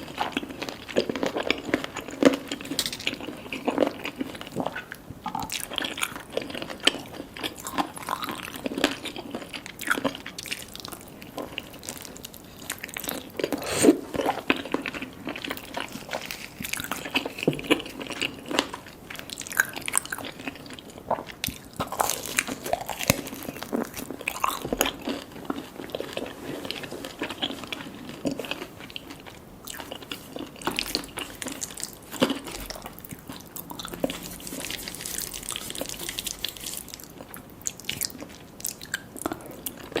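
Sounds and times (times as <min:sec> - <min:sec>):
chewing crispy food: 0:00.0 - 0:40.0
crisp crunches: 0:21.5 - 0:40.0.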